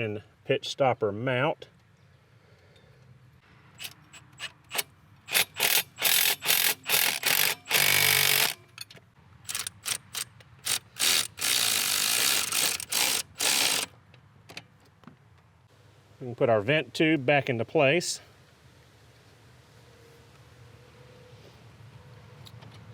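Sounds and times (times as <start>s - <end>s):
ratchet tightening bolts: 3.8s - 14.0s.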